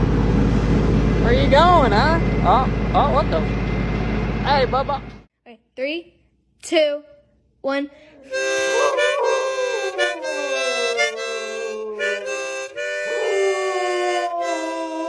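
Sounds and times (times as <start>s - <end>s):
harmonica chords: 8.2s - 15.0s
dog howling: 8.3s - 15.0s.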